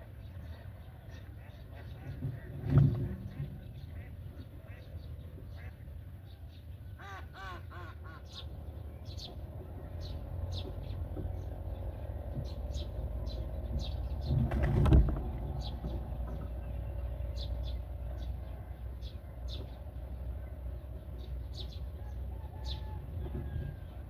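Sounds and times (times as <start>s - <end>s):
harsh bird calls: 0.0s - 24.0s
steady low rumble: 7.9s - 24.0s.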